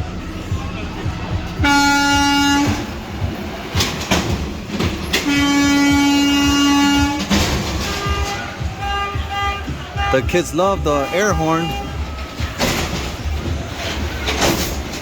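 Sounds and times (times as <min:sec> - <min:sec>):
truck air horn blasts: 0:01.6 - 0:03.0, 0:05.1 - 0:12.5.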